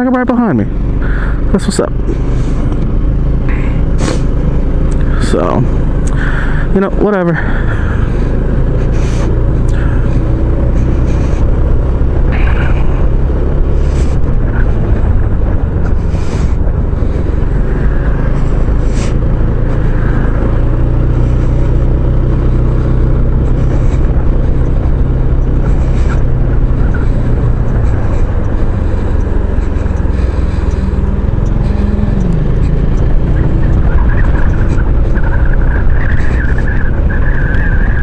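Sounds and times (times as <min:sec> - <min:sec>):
scooter engine drone: 0:00.0 - 0:38.0
short high hisses: 0:04.0 - 0:04.3
wind rush on microphone: 0:07.6 - 0:38.0.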